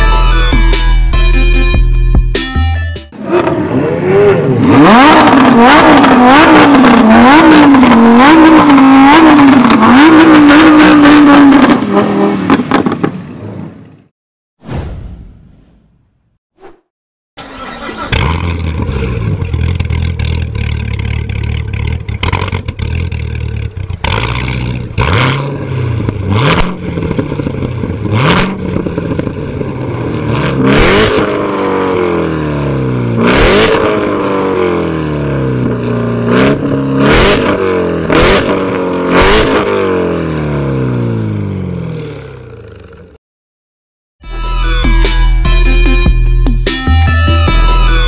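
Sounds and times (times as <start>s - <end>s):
car engine revving: 3.2s - 13.0s, 17.4s - 42.5s.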